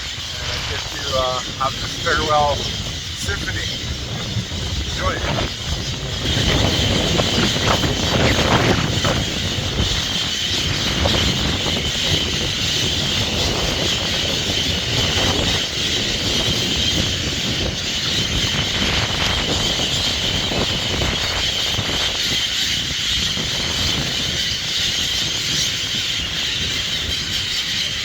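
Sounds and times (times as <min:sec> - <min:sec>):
city traffic rumble: 0:00.0 - 0:16.9
flock of birds calling: 0:00.0 - 0:28.0.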